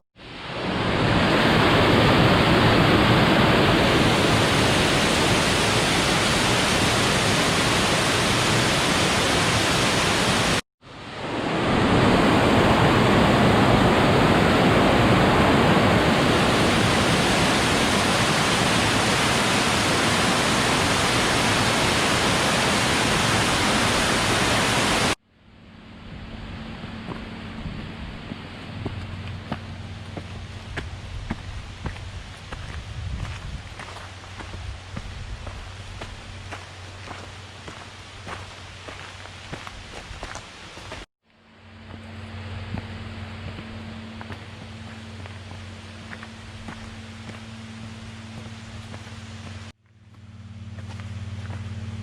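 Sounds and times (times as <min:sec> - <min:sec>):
waterfall rushing: 0:00.2 - 0:25.2.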